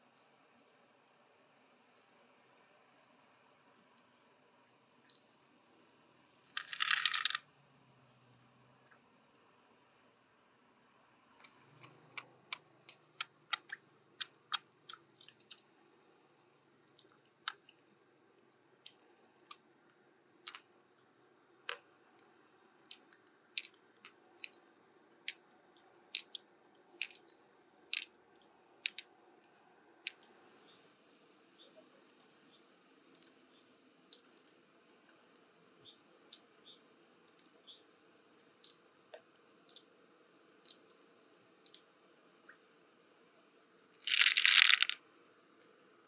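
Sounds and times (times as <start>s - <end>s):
clicks of shells and pearls: 6.4s - 7.4s, 11.4s - 15.7s, 20.4s - 20.7s, 22.8s - 24.6s, 26.1s - 26.4s, 27.0s - 28.1s, 28.8s - 29.1s, 30.0s - 30.4s, 32.1s - 32.3s, 33.2s - 33.4s, 38.6s - 39.9s, 40.6s - 41.0s, 41.6s - 41.9s, 44.0s - 45.0s.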